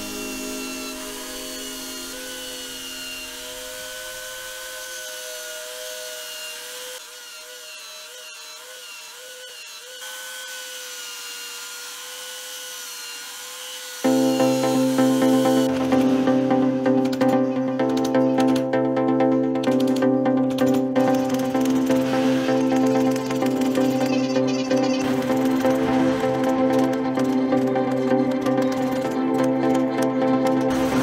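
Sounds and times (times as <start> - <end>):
background music: 0.0 - 4.7, 14.1 - 31.0
belt sander whining: 0.0 - 18.7, 19.4 - 31.0.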